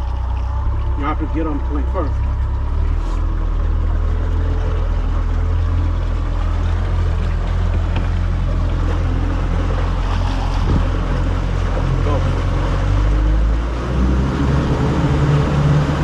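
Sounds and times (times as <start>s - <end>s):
boat motor droning: 0.0s - 16.0s
water noise: 0.0s - 16.0s
wind noise: 10.0s - 11.2s.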